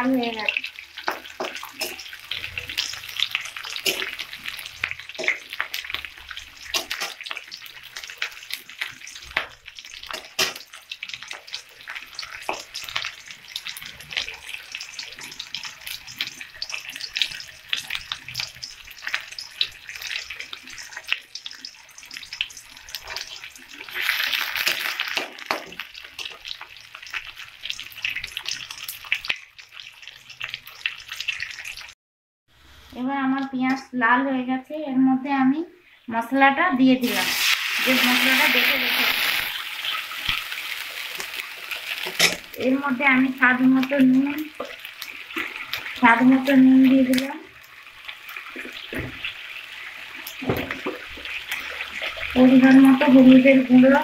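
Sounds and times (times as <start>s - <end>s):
vegetables sizzling in hot oil: 0.0s - 34.2s, 36.8s - 54.0s
metal spatula scraping a pan: 41.2s - 42.6s
metal spatula scraping pan: 41.9s - 42.6s.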